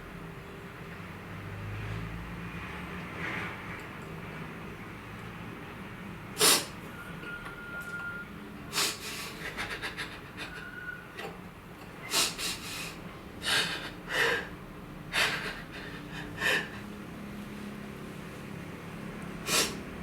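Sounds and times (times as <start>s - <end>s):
person breathing heavily: 12.1s - 14.5s, 15.1s - 17.0s, 19.4s - 19.8s.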